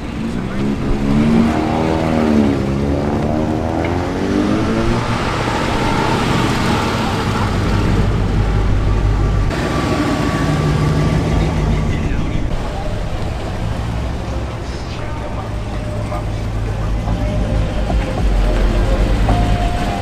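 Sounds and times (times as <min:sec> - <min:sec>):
vehicle engines running: 0:00.0 - 0:20.0.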